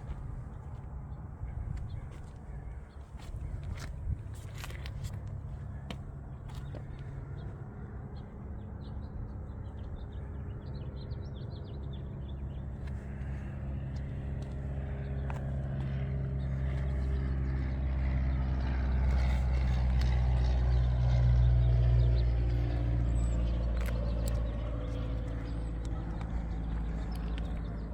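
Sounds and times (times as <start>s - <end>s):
birds chirping: 0.0s - 27.9s
car engine running: 18.5s - 27.9s.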